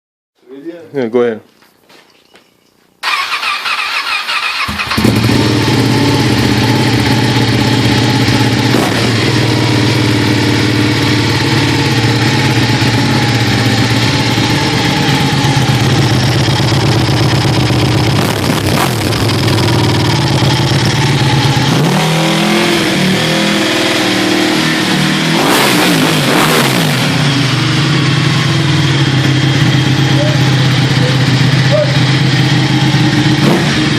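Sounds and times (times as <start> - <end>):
motorcycle starter cranking: 3.0 - 5.4
engine revving: 3.0 - 33.9
motorcycle engine idling loudly: 4.7 - 33.9.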